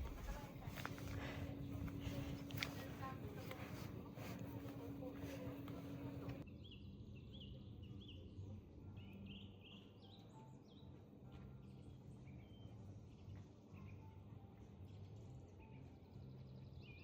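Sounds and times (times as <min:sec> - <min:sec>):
faint low rumble: 0:00.0 - 0:06.4.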